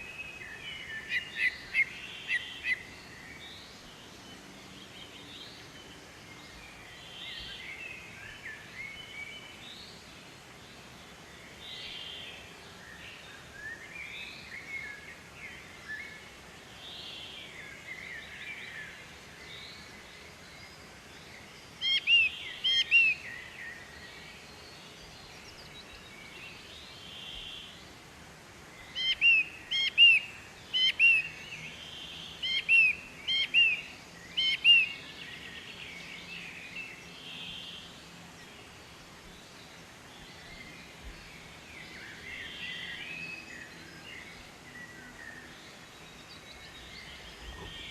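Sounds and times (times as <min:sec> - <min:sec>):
soft bird chirps: 0:28.7 - 0:47.9.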